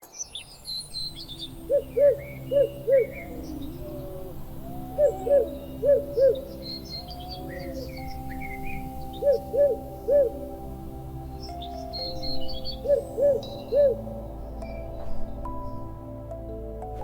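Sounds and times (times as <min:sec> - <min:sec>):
small birds chirping faintly: 0:00.0 - 0:17.0
low droning tones: 0:01.1 - 0:17.0
owl hooting: 0:01.6 - 0:10.7, 0:12.0 - 0:14.3.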